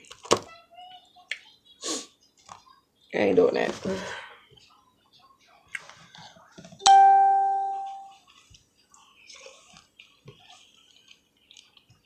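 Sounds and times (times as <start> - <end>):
faint chewing: 8.1 - 12.0.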